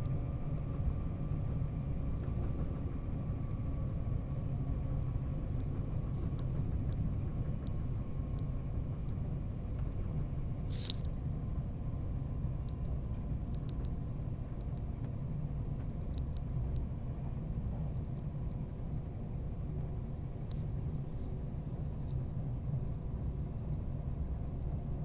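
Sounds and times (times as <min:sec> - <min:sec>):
train rumbling: 0:00.0 - 0:25.0
faint light ticks: 0:06.3 - 0:10.2, 0:12.6 - 0:15.2, 0:15.8 - 0:16.9.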